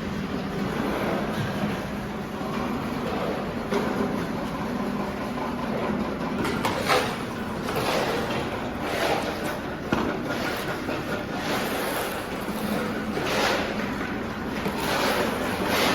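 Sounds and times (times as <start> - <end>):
blade rasping up flooring: 6.4 - 15.9.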